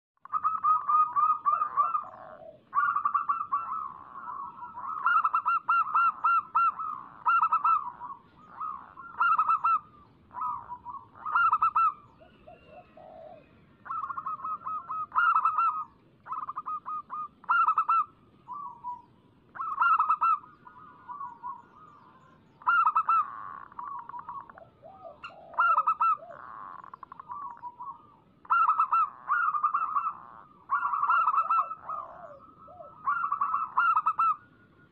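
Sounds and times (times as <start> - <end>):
doves cooing: 0.2 - 34.9.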